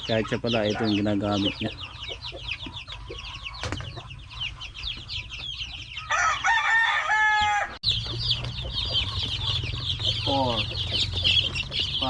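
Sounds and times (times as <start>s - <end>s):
chicks peeping: 0.0s - 12.0s
rooster crowing: 6.0s - 7.8s.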